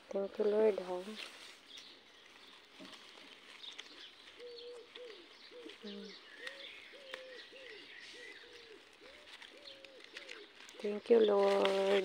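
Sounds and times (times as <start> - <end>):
small birds chirping faintly: 0.0 - 12.0
bird hooting: 3.9 - 12.0.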